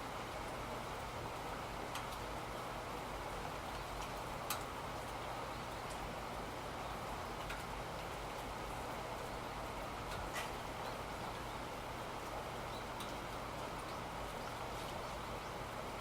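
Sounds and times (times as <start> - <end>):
steady rain: 0.0 - 16.0
raindrops ticking: 1.8 - 2.7, 3.5 - 15.4.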